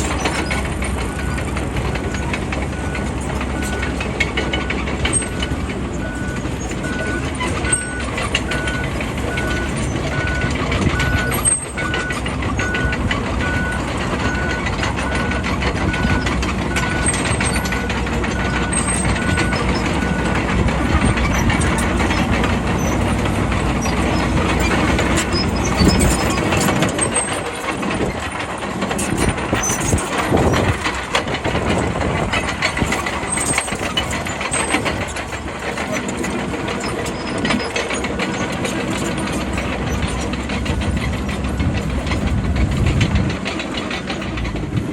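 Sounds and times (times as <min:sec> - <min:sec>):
bulldozer diesel engine running: 0:00.0 - 0:44.9
reversing alarm beeping: 0:02.8 - 0:20.4.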